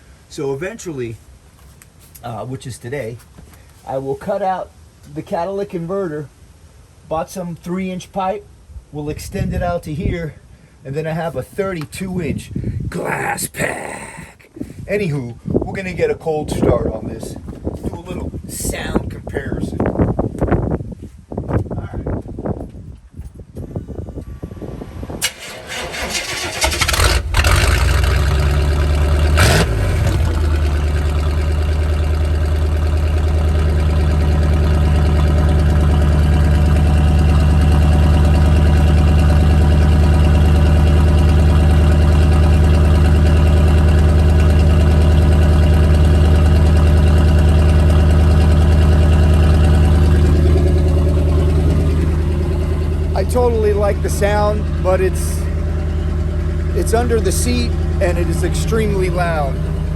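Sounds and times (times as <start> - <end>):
loud engine revving and idling: 24.1 - 59.9
starter motor cranking: 25.1 - 32.8.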